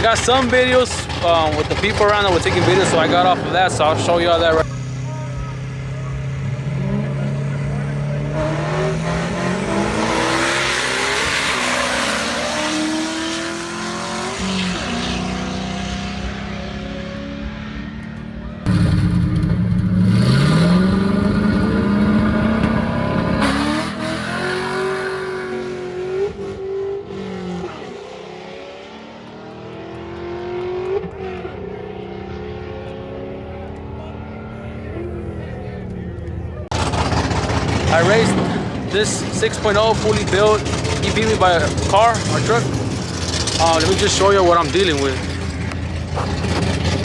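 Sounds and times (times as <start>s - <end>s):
drag racing engines at full throttle: 0.0s - 47.0s.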